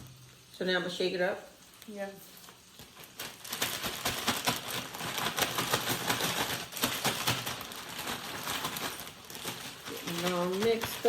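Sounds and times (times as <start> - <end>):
plastic bag shaken and crinkling: 2.5 - 11.0.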